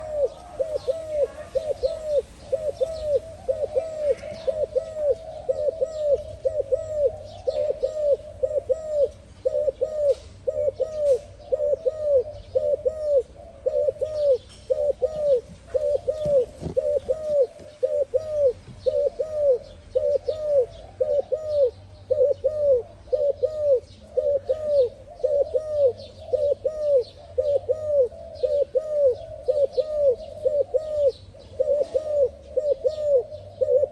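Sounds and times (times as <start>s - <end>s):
dove cooing: 0.0s - 33.9s
small birds chirping: 0.0s - 33.9s.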